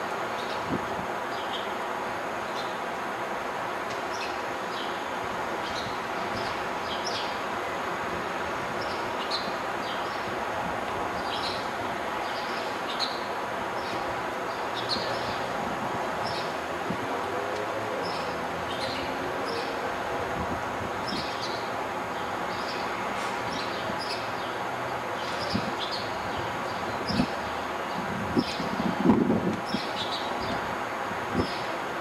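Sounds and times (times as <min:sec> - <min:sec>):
outdoor city rumble: 0:00.0 - 0:32.0
small birds chirping: 0:25.2 - 0:28.8.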